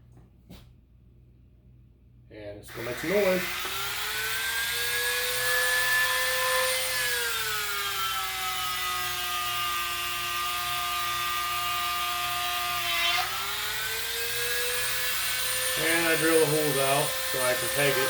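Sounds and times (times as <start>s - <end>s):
rotary tool drilling wood: 2.7s - 18.0s.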